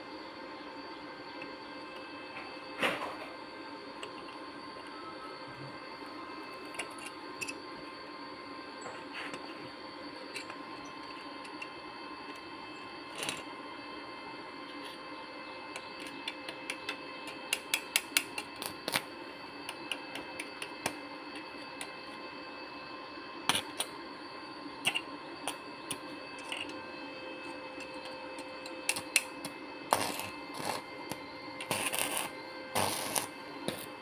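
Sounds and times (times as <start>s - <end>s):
faint steady hum: 0.0s - 34.0s
tools clicking and tapping: 15.8s - 19.0s, 24.8s - 26.8s, 27.8s - 30.8s.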